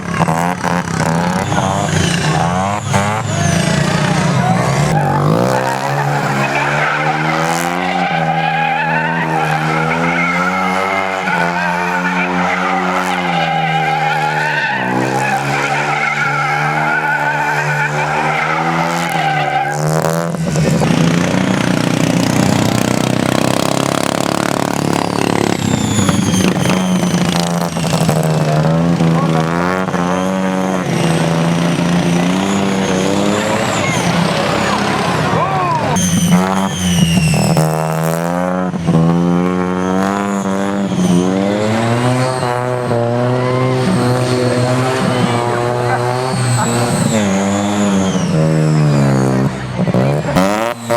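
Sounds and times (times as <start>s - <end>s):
lawn mower engine running hard: 19.6s - 29.8s.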